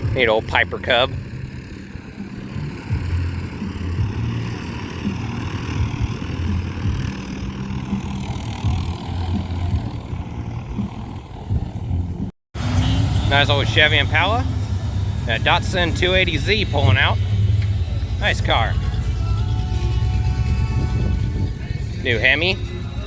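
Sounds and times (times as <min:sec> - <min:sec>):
engine idling: 0:00.0 - 0:23.0
outdoor background noise: 0:00.0 - 0:23.0.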